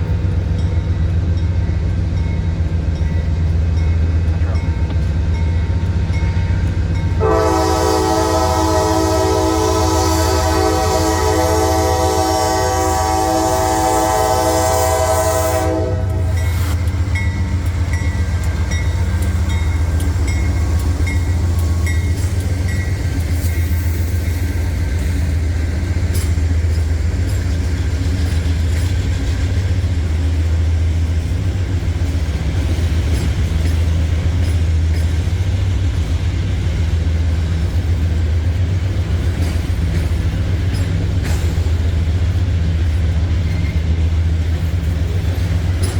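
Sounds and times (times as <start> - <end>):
train wheels clattering on rails: 0.0 - 45.9
locomotive air horn chord: 7.2 - 16.8.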